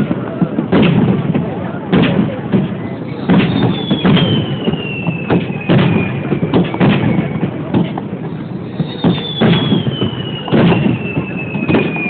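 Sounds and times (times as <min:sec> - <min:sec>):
fireworks booming: 0:00.0 - 0:12.0
high falling whistle: 0:03.0 - 0:07.6, 0:08.3 - 0:12.0.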